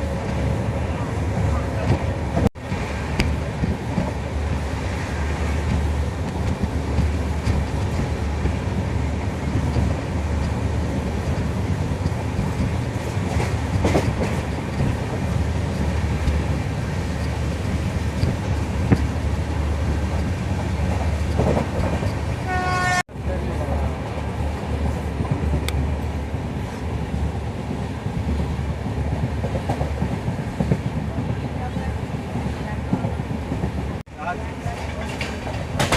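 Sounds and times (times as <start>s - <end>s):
train wheels rumbling on track: 0.0s - 35.9s.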